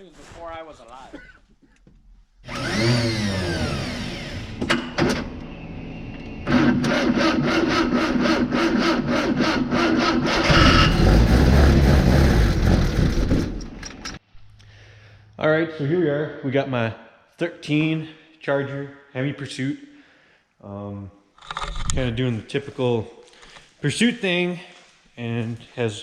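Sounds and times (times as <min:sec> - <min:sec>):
car engine revving down: 0:06.4 - 0:13.8.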